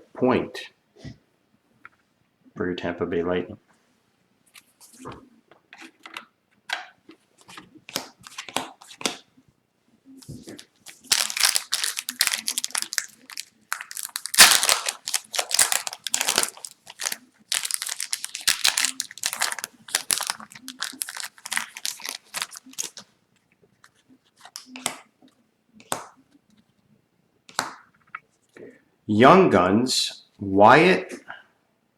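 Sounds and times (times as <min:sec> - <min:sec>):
foil wrapper crinkling and tearing: 0:10.5 - 0:23.0.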